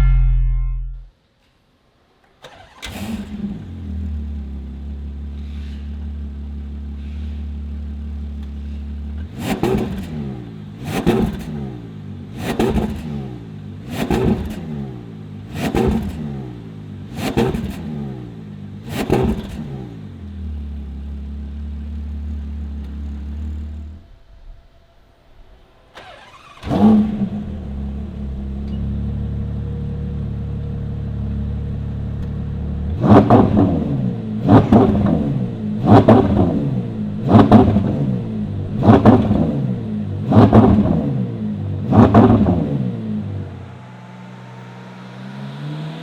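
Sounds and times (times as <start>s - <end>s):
engine revving blips: 0.0s - 1.1s, 23.1s - 46.0s
car engine starting: 2.2s - 46.0s
car engine idling: 3.6s - 45.4s.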